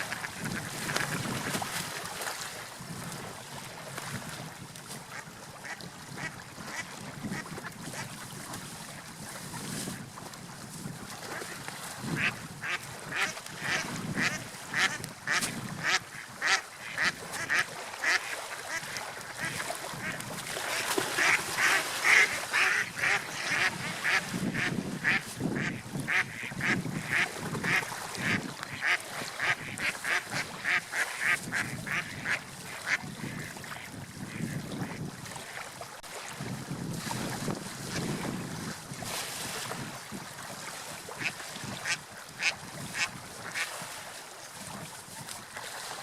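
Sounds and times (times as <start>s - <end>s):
low rush of wind or water: 0.0s - 46.0s.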